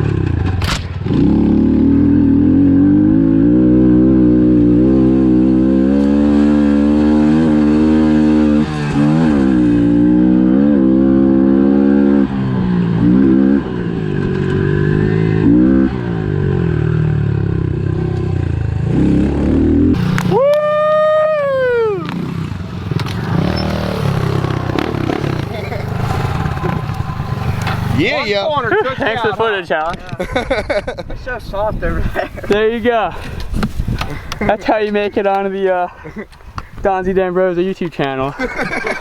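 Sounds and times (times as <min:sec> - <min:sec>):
small motorbike engine revving: 0:00.0 - 0:17.5, 0:18.9 - 0:29.1.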